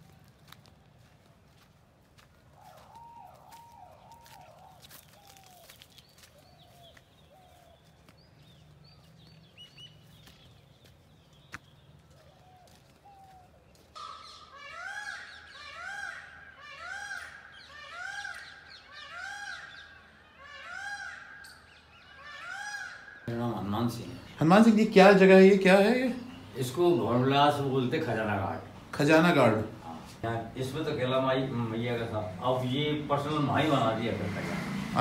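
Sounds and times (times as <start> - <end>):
bird call rising and falling: 2.5 - 27.8.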